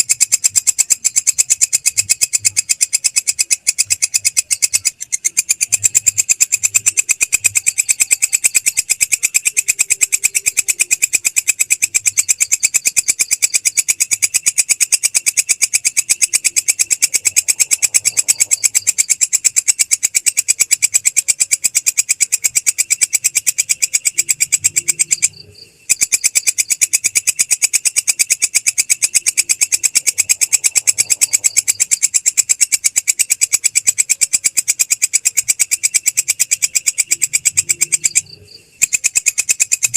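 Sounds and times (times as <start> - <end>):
insect rasping clicks: 0.0 - 39.9.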